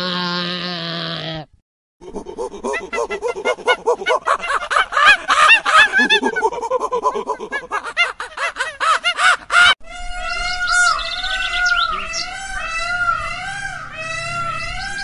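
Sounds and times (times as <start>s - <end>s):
monkeys chattering: 2.0s - 15.0s
birds warbling and chirping: 8.8s - 15.0s.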